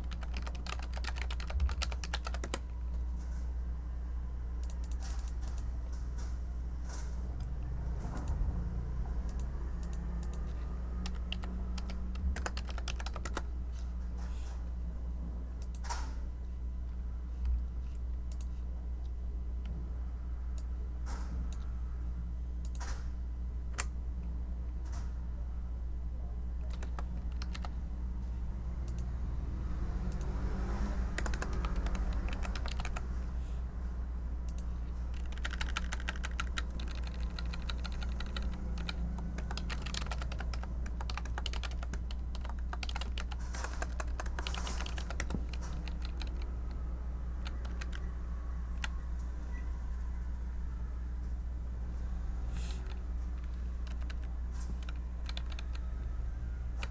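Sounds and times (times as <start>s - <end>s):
computer keyboard typing: 0.0s - 2.8s, 4.6s - 5.7s, 9.2s - 13.5s, 26.6s - 27.8s, 30.1s - 33.2s, 34.5s - 49.1s, 52.8s - 56.0s, 56.6s - 56.9s
steady low hum: 0.0s - 56.9s.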